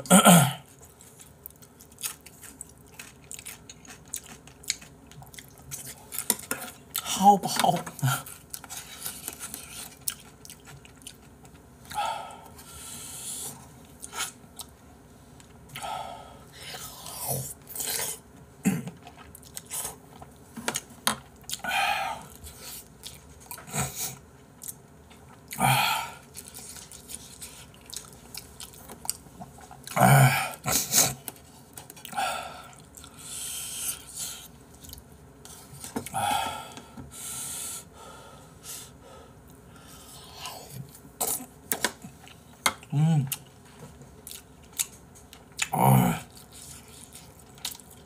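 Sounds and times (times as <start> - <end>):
wet chewing: 0.9 - 7.0, 7.9 - 11.7, 26.3 - 30.0, 44.2 - 48.0.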